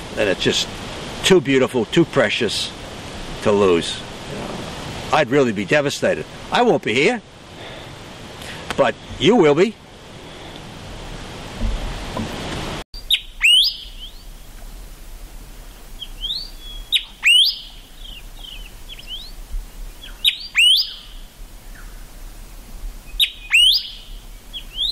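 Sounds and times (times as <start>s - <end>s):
wind noise: 2.7s - 6.8s, 7.4s - 24.9s
bird rising whistle call: 13.0s - 14.3s, 16.0s - 19.3s, 20.0s - 21.2s, 23.1s - 24.9s
soft bird chirps: 13.0s - 14.5s, 15.7s - 22.0s, 23.1s - 24.9s.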